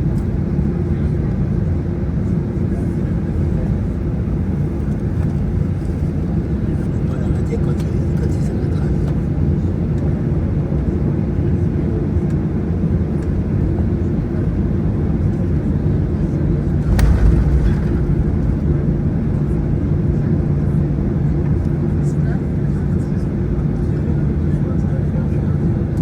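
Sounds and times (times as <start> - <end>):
airplane cabin drone: 0.0 - 26.0.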